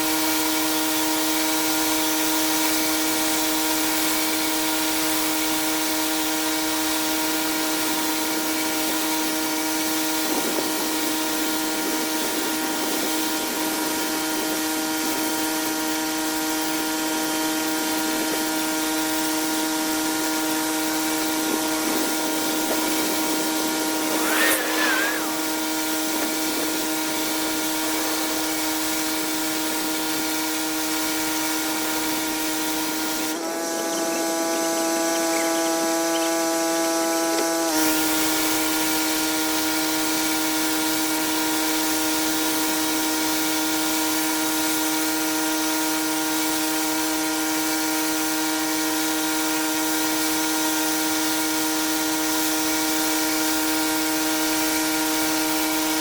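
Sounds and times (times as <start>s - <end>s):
pressure washer drone: 0.0s - 56.0s
water spray hissing: 20.2s - 33.3s
warbling chirp: 22.6s - 29.4s.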